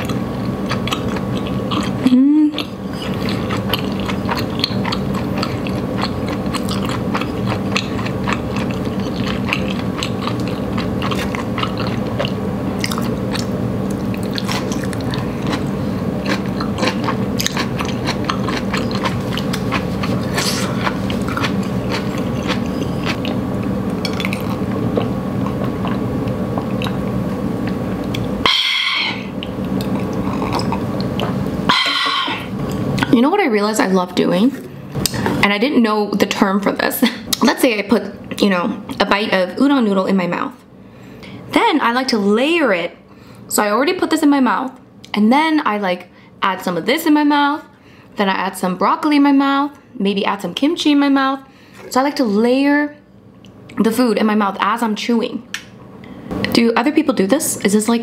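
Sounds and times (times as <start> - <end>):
chewing noodles: 0.0 - 32.8
low hum: 0.0 - 42.4.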